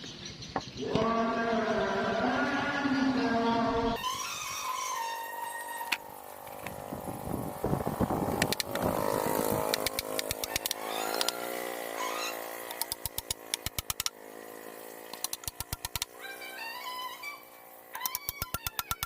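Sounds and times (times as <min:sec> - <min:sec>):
longtail boat engine revving: 0:04.0 - 0:18.0.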